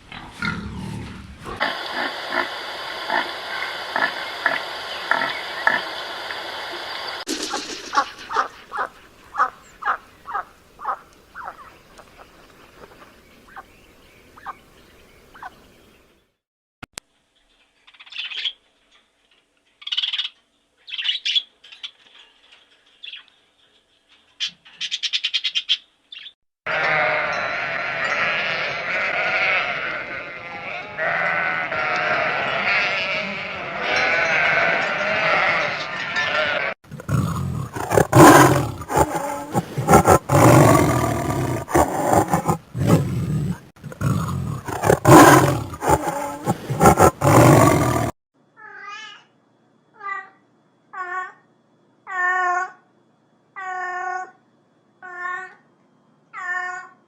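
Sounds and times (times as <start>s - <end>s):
animal calls: 7.2s - 11.8s, 26.7s - 48.1s.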